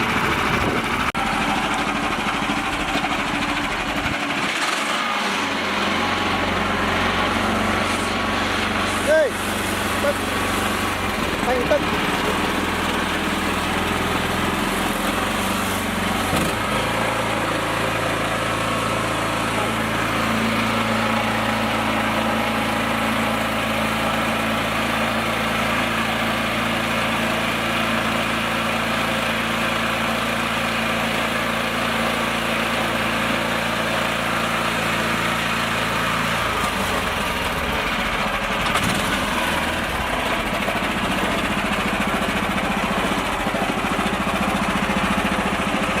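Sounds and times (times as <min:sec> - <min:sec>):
small tractor engine running: 0:00.0 - 0:46.0.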